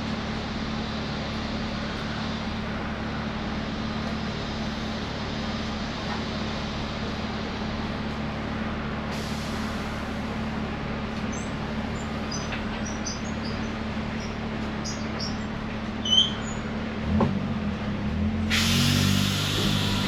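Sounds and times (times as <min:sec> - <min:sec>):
tram interior low hum: 0:00.0 - 0:20.0
air brakes hissing: 0:09.1 - 0:10.6, 0:18.5 - 0:20.0
deeper drone: 0:16.4 - 0:20.0.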